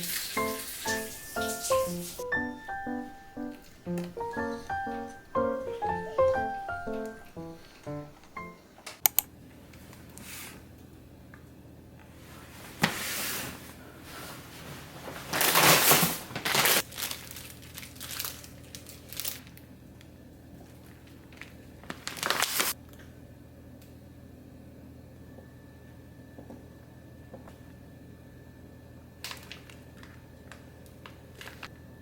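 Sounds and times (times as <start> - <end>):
sharp clicks: 7.3 - 9.3
crinkling and rustling: 15.0 - 19.6.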